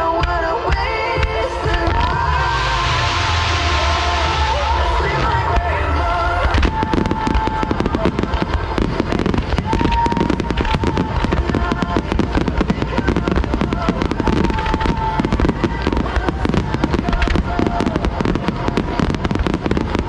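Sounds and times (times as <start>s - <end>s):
fireworks bursting and crackling: 0.0s - 20.0s.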